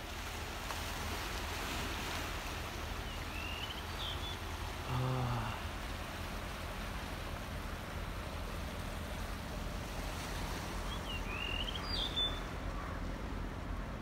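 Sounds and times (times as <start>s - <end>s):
low outdoor background noise: 0.0s - 14.0s
bird chirping and whistling: 10.9s - 12.4s.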